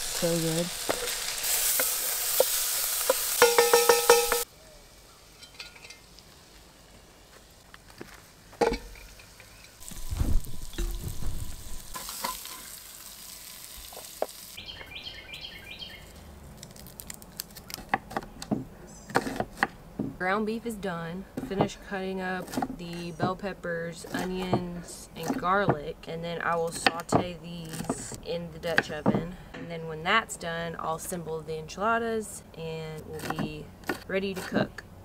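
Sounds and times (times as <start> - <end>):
meat sizzling in a pan: 0.0 - 4.5, 9.6 - 14.6.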